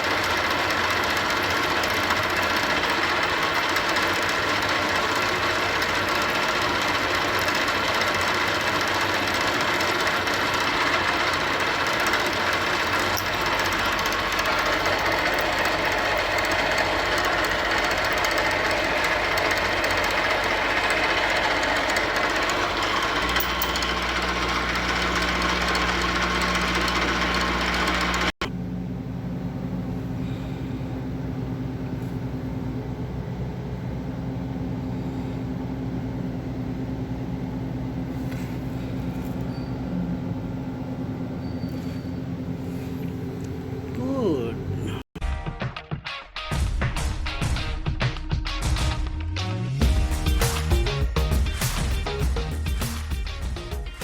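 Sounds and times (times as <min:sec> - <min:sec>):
electric motor running loudly: 0:00.0 - 0:28.4.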